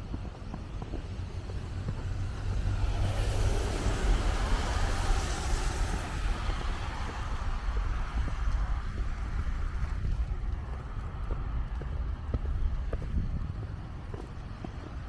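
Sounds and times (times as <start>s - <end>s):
wind rumble on microphone: 0.0s - 15.0s
vehicle tyre hiss: 1.8s - 10.1s.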